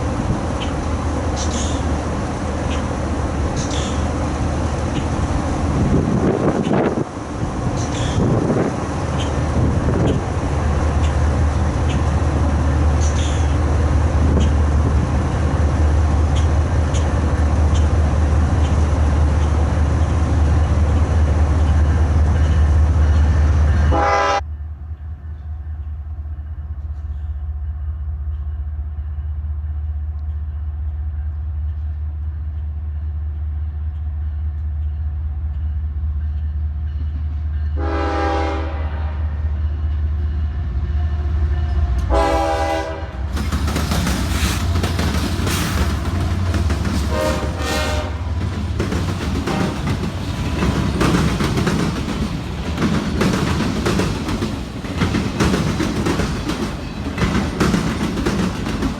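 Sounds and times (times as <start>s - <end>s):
wheels clicking over rail joints: 0.0s - 15.6s, 43.1s - 58.9s
diesel locomotive rumble: 0.0s - 58.9s
freight train rumbling by: 0.0s - 58.9s
train horn blast: 23.9s - 24.6s, 37.8s - 39.4s, 41.7s - 43.4s, 47.0s - 48.4s.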